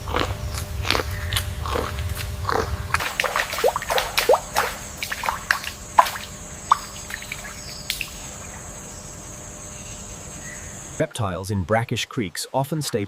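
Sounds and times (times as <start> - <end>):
water drops plinking: 3.0 - 8.2.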